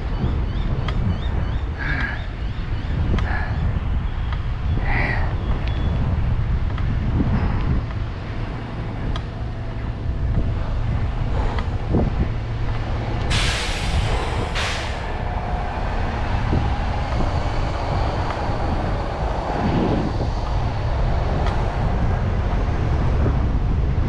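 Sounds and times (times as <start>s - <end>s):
road and traffic rumble: 0.0s - 24.0s
wind buffeting microphone: 0.0s - 24.0s
short sharp hisses: 13.3s - 15.1s.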